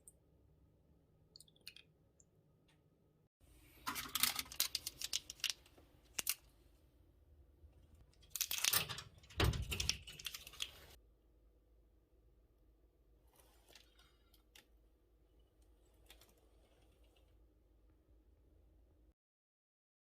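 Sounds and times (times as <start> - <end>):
packaging crinkling and rustling: 3.8 - 6.5, 8.2 - 11.0.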